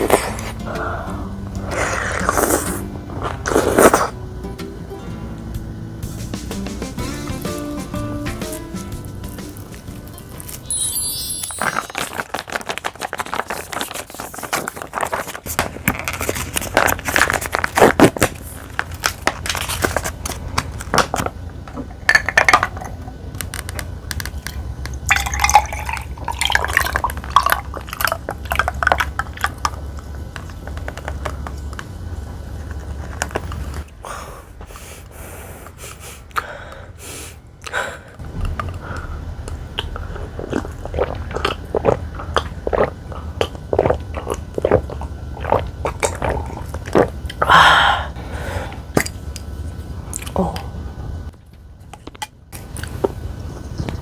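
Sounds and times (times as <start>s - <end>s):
chewing: 0.0s - 4.2s, 38.4s - 47.5s.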